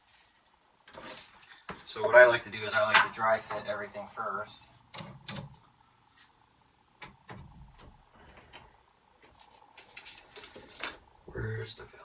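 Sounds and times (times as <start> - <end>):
metal fittings and tools clinking: 2.9 - 3.7.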